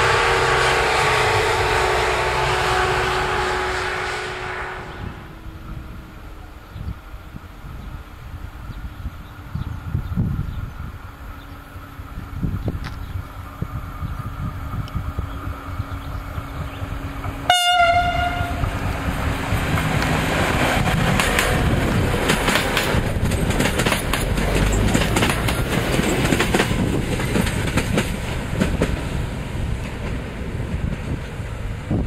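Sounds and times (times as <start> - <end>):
train horn: 0.0 - 6.4, 17.3 - 19.2
train wheels clicking over rail joints: 18.4 - 32.0.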